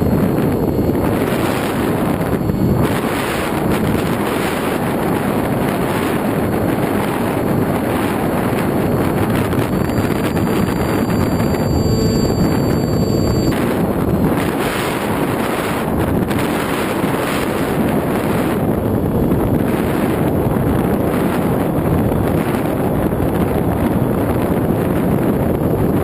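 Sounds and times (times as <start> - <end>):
faint thin high whine: 6.3 - 15.7.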